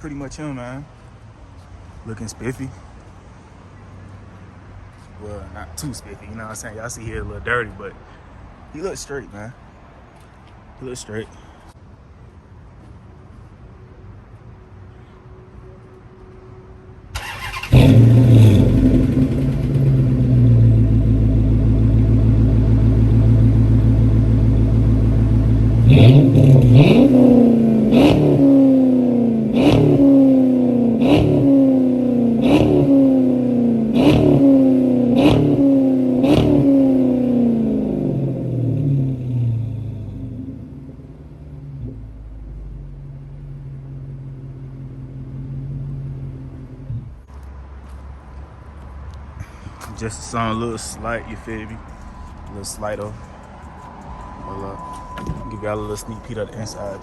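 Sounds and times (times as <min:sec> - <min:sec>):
loud car engine idling and revving: 0:17.2 - 0:48.0, 0:49.1 - 0:57.0.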